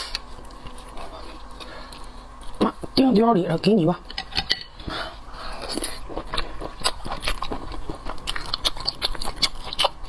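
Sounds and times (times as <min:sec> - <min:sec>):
person chewing food: 0:00.0 - 0:03.0, 0:04.2 - 0:10.0.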